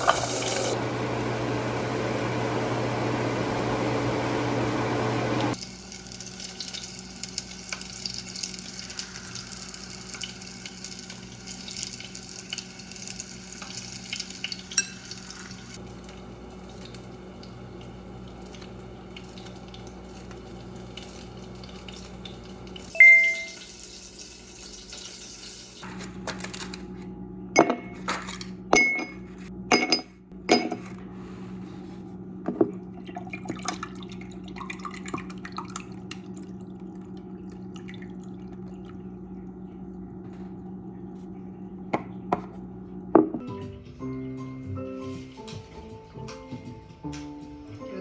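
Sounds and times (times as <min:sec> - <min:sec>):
sharp ringing clink: 0:23.0 - 0:23.6
dishes clinking and clattering: 0:27.6 - 0:31.0
steady low hum: 0:34.0 - 0:43.4.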